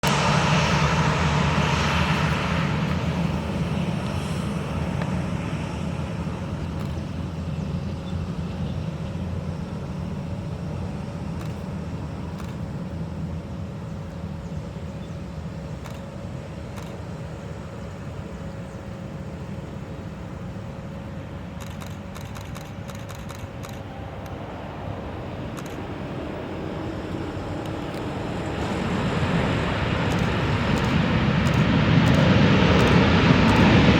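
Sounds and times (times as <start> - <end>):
jet engines rumbling and whining: 0.0 - 33.9.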